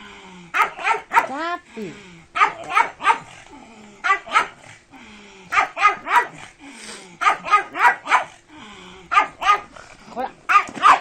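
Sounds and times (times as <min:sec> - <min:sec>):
dog barking: 0:00.5 - 0:01.4, 0:02.4 - 0:03.3, 0:04.0 - 0:04.6, 0:05.5 - 0:06.4, 0:07.2 - 0:08.4, 0:09.1 - 0:09.7, 0:10.5 - 0:11.0.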